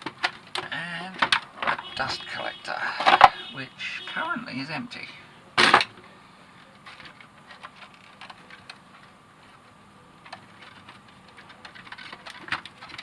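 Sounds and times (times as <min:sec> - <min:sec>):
plastic parts clicking: 0:00.0 - 0:01.9, 0:03.0 - 0:03.4, 0:06.9 - 0:09.1, 0:10.2 - 0:13.0.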